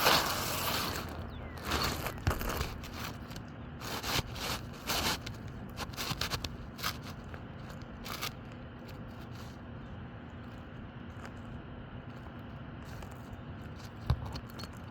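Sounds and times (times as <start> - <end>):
shingles scraping and rustling: 0.0 - 9.7.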